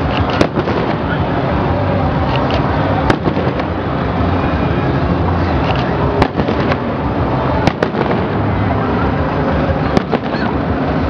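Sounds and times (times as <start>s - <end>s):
firework shells bursting: 0.0s - 1.2s, 2.3s - 3.8s, 5.6s - 8.4s, 9.9s - 10.6s
sharp firework reports: 0.0s - 11.0s.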